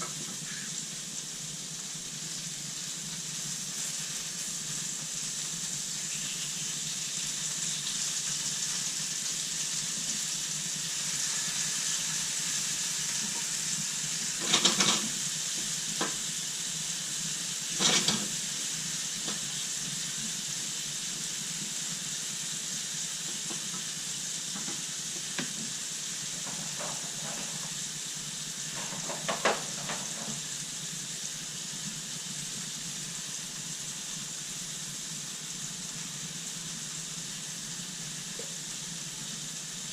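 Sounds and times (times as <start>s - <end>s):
chicken sizzling in a pan: 0.0s - 39.9s
utensil clattering on pan: 14.4s - 15.2s, 17.8s - 18.3s, 26.4s - 27.8s, 28.7s - 30.4s.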